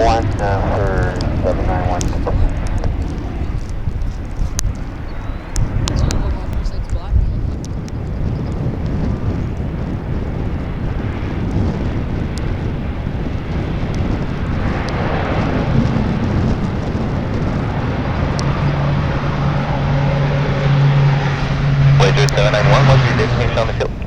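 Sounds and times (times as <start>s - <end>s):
jet engines rumbling: 0.0s - 24.0s
steady low hum: 0.0s - 24.0s
jet engine hiss: 18.2s - 23.9s.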